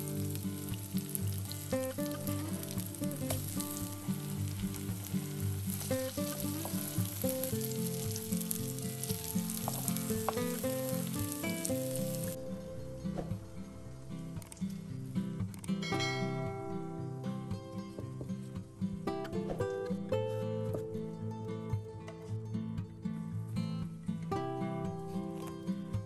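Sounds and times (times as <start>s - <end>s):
fritters sizzling in oil: 0.0s - 12.4s.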